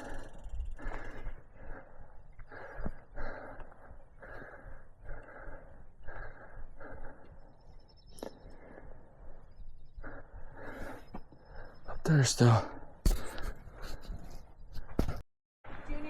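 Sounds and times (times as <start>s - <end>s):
person breathing hard: 0.0s - 12.0s.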